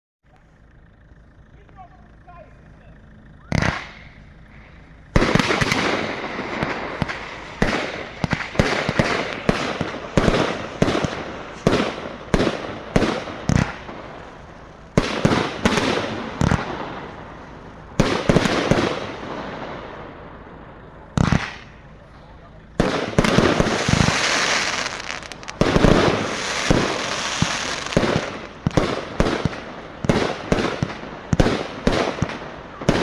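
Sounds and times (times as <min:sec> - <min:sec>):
firework cake bangs: 0:05.2 - 0:14.0, 0:21.1 - 0:21.8, 0:22.8 - 0:33.0.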